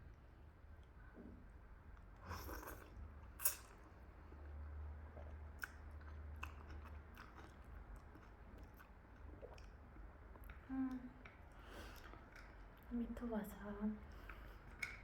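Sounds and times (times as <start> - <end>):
chewing and biting food: 5.0 - 10.6, 11.2 - 12.9.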